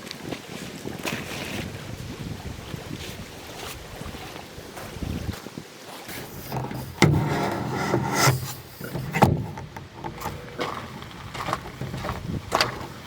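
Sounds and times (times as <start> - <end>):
knocking and rubbing against canoe: 6.0 - 13.0.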